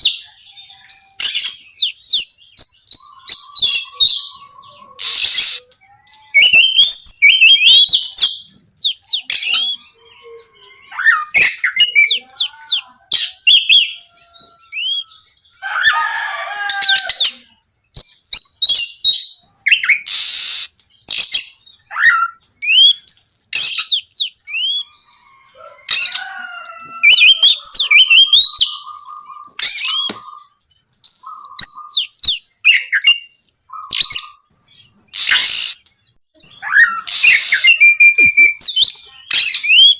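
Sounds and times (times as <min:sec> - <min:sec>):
bird singing whistled notes: 0:00.8 - 0:12.2, 0:17.9 - 0:25.0, 0:26.1 - 0:35.8, 0:36.4 - 0:39.9
harsh rasping bird notes: 0:03.2 - 0:05.8, 0:33.7 - 0:35.9, 0:36.5 - 0:39.9.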